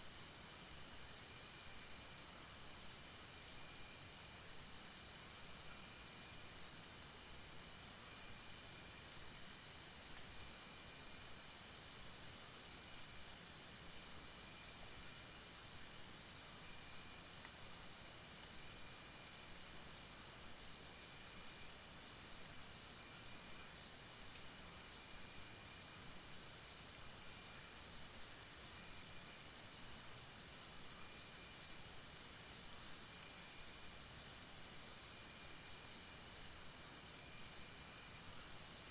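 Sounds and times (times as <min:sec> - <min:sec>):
low insect buzz: 0:00.1 - 0:38.9
insects trilling: 0:14.4 - 0:38.9.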